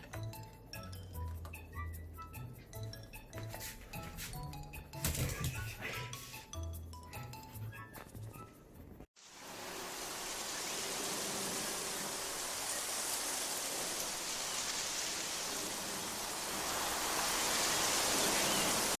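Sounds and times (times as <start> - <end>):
steady rain-like hiss: 9.2 - 19.0.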